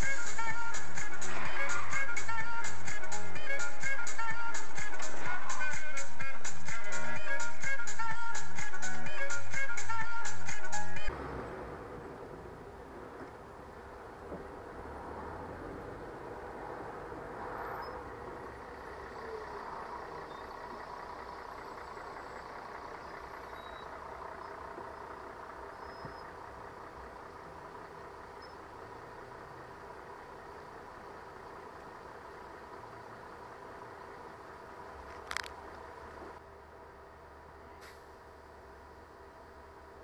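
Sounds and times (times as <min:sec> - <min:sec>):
vehicle engine and road noise: 0:00.0 - 0:40.0.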